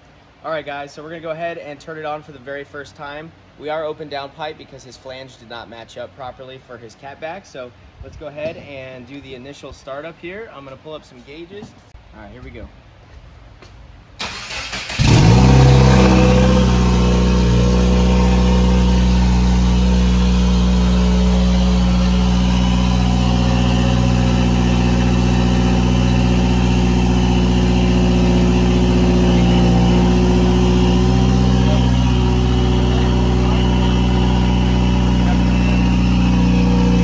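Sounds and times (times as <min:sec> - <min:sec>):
engine starter cranking: 0:14.2 - 0:16.2
loud car engine idling: 0:15.0 - 0:37.0.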